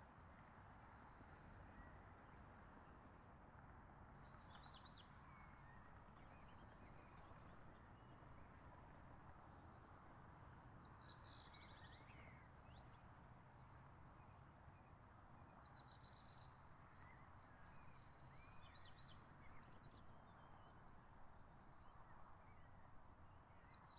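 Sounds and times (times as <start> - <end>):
faint birdsong: 10.8 - 23.9.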